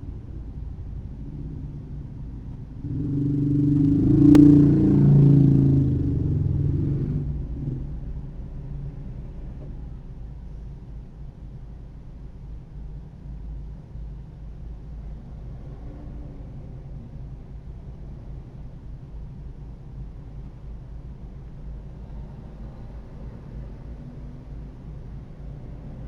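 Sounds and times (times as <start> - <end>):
low road rumble: 0.0 - 26.0
vehicle engine passing: 2.6 - 8.0.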